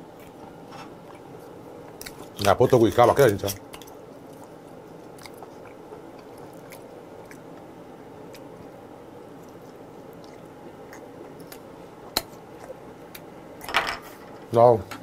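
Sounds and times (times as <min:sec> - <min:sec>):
person chewing wet mouth sounds: 0:01.9 - 0:02.4, 0:03.5 - 0:13.3.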